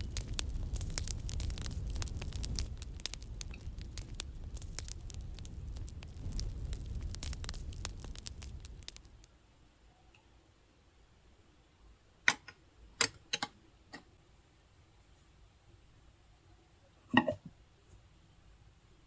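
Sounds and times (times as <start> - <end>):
fireplace crackling: 0.0 - 9.4.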